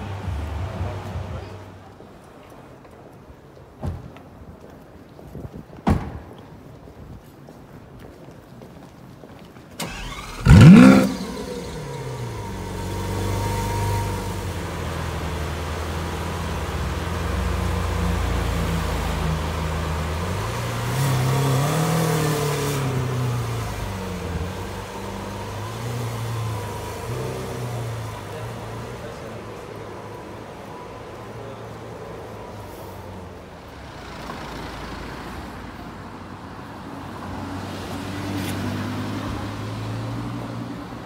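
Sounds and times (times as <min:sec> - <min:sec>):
car engine starting and revving: 0:09.8 - 0:31.3.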